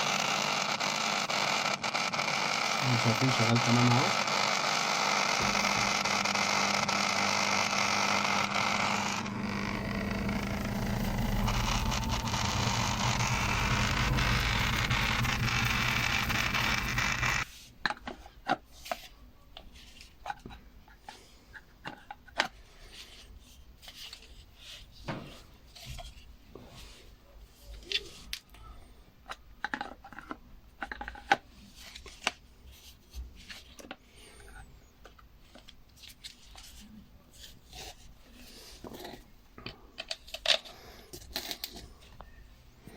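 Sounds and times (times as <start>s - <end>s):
water pump humming: 5.4s - 17.4s.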